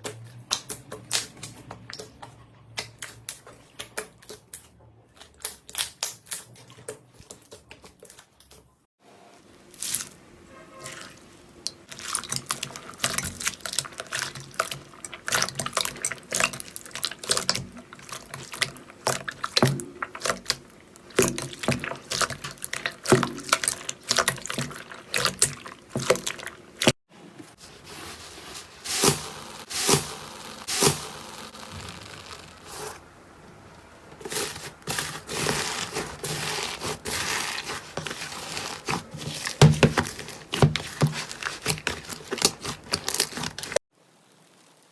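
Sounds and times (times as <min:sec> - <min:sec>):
slime squished by hand: 0:34.2 - 0:43.8.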